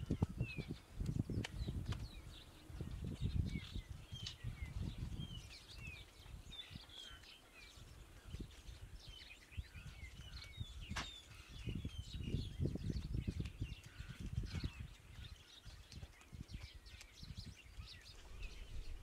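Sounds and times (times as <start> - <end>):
small birds chirping: 0.0 - 19.0
low rumbling noise: 18.2 - 19.0.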